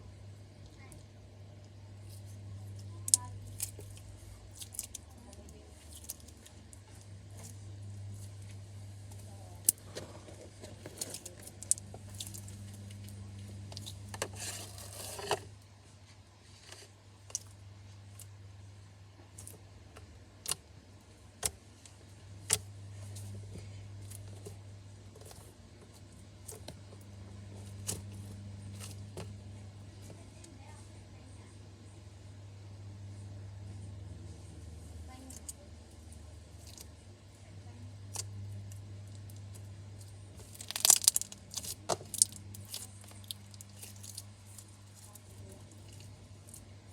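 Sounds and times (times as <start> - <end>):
slime crackling squish: 39.2 - 46.6.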